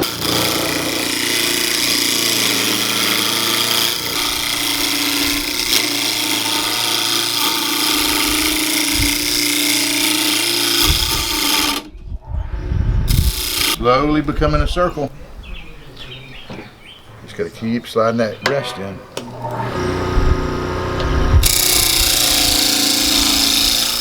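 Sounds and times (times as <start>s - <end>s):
gouge scraping spinning wood: 0.0s - 11.9s, 13.1s - 14.9s, 18.4s - 24.0s
lathe motor hum: 0.0s - 11.9s, 13.1s - 14.2s, 19.2s - 24.0s.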